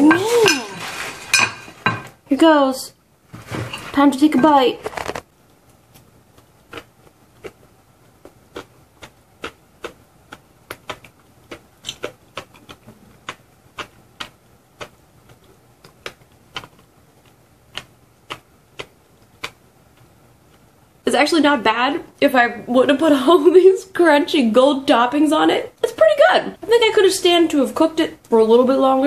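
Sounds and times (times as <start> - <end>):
person chewing crunchy food: 4.8 - 21.0.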